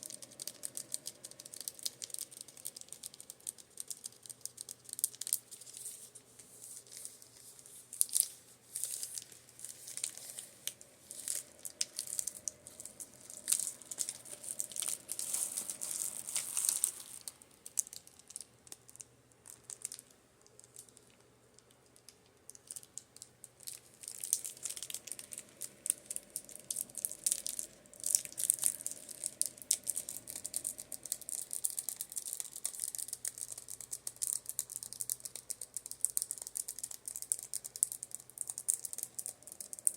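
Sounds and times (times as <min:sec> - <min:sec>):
tapping and scratching makeup brushes: 0:00.0 - 0:17.4.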